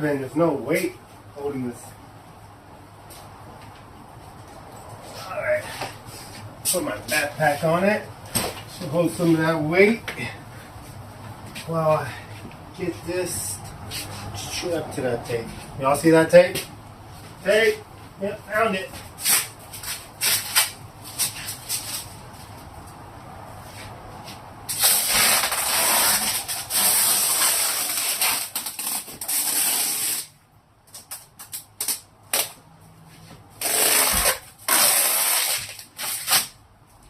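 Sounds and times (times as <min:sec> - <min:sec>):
tape ripping off a roll: 0:19.2 - 0:22.1, 0:24.7 - 0:32.6, 0:33.6 - 0:36.6.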